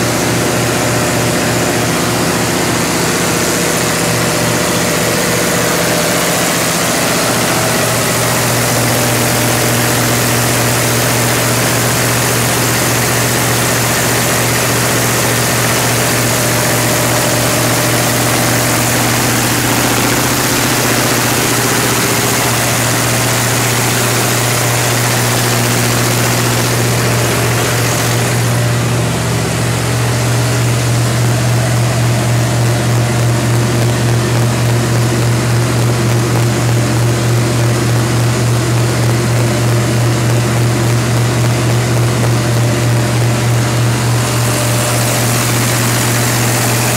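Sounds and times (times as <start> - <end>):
generator humming: 0.0 - 46.9.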